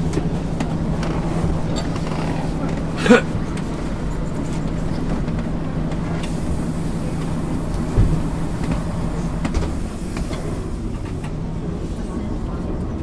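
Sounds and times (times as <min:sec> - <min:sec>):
bus diesel engine drone: 0:00.0 - 0:13.0.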